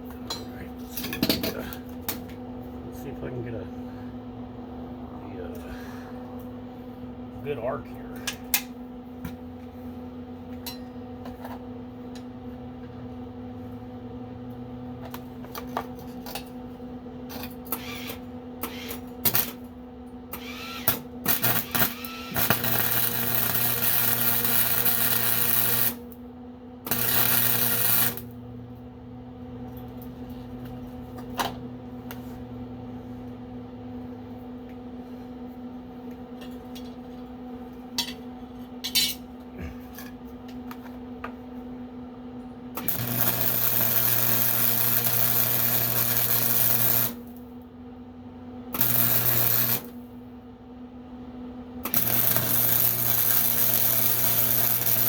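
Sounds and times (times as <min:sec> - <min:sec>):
electrical hum: 0:00.0 - 0:55.0
sizzling weld: 0:17.7 - 0:19.6, 0:20.3 - 0:26.2, 0:26.9 - 0:28.4, 0:42.8 - 0:47.4, 0:48.7 - 0:50.1, 0:51.8 - 0:55.0
welding arc crackles: 0:20.4 - 0:26.2, 0:26.9 - 0:28.4, 0:42.8 - 0:47.4, 0:48.8 - 0:50.1, 0:51.8 - 0:55.0.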